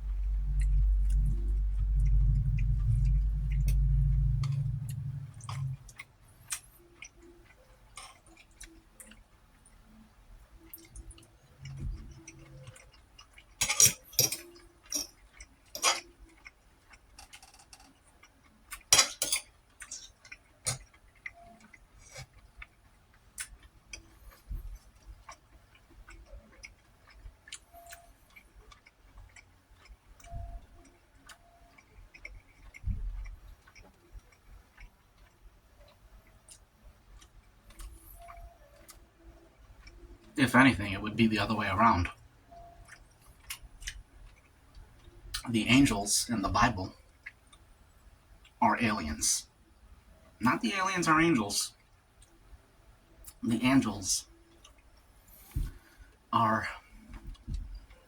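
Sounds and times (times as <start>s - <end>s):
low rumble: 0.0s - 6.0s
cutlery clinking on plate: 13.6s - 15.2s, 18.9s - 20.0s.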